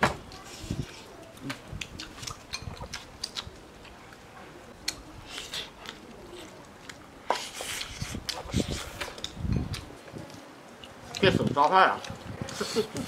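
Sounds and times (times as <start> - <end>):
chewing clicks and smacks: 1.3 - 4.0.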